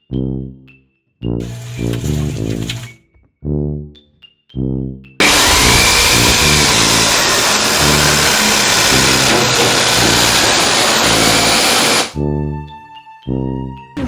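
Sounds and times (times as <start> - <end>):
loud engine running: 5.2 - 12.2.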